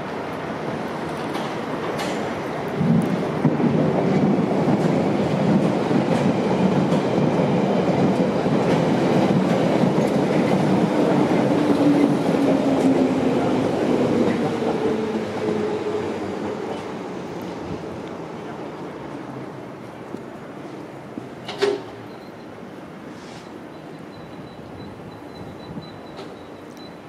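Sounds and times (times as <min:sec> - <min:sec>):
freight train approaching: 0:00.0 - 0:27.0
train wheels clattering on rails: 0:01.0 - 0:17.0, 0:24.2 - 0:27.0.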